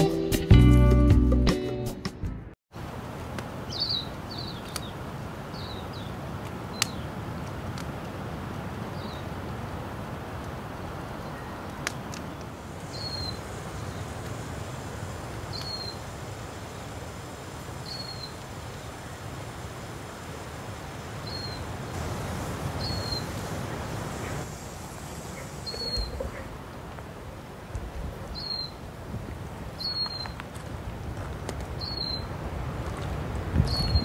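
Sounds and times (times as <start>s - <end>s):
campfire crack: 2.8s - 33.6s
bird chirping: 12.9s - 14.0s, 25.4s - 26.5s, 28.3s - 28.8s, 29.8s - 30.4s, 31.8s - 32.3s, 33.7s - 34.0s.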